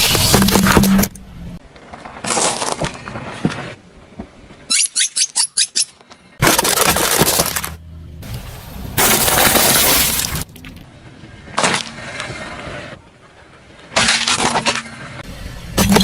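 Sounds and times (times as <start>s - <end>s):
brittle objects crunching and breaking: 6.4s - 7.8s.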